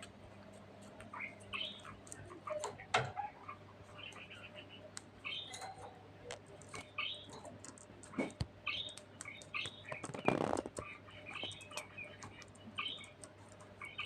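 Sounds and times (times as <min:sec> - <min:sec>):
budgerigar chirping: 0:01.1 - 0:02.0, 0:06.8 - 0:07.4, 0:08.6 - 0:13.2, 0:13.8 - 0:14.0.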